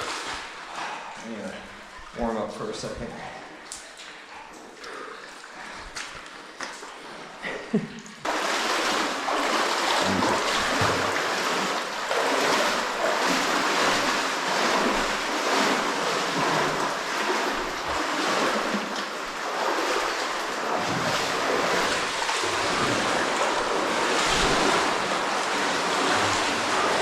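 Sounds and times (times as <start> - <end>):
rushing stream water: 8.3 - 27.0.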